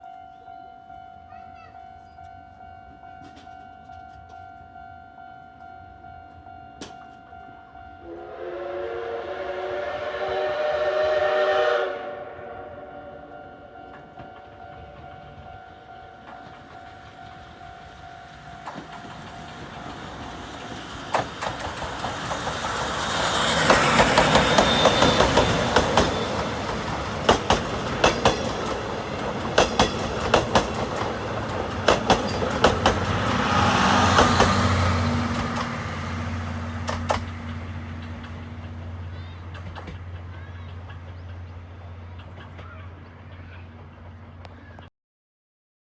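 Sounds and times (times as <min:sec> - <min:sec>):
steam train passing: 0:02.4 - 0:44.8
wheels clacking over rail joints: 0:13.8 - 0:44.8.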